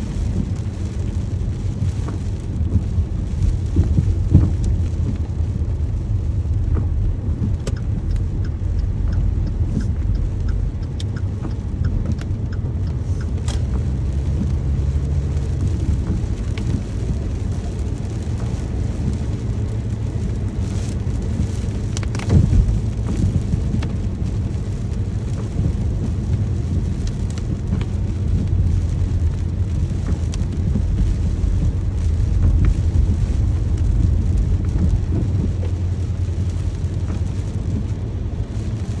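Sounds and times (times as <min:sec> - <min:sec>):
heavy low rumble: 0:00.0 - 0:39.0
steady rain: 0:00.0 - 0:39.0.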